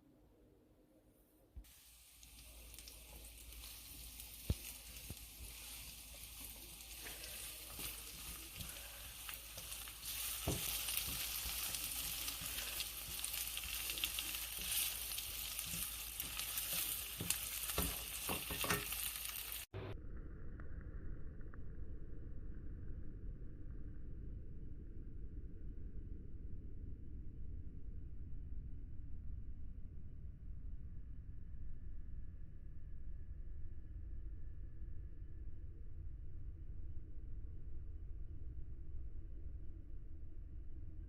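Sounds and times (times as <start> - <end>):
food sizzling in a pan: 1.7 - 19.8
spoon scraping a pan: 2.3 - 19.6.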